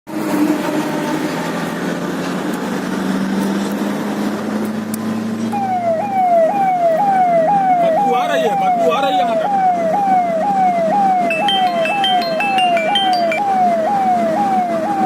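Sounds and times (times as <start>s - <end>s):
vehicle engine running: 0.1s - 5.5s
road noise: 0.1s - 15.0s
siren wailing: 5.5s - 15.0s.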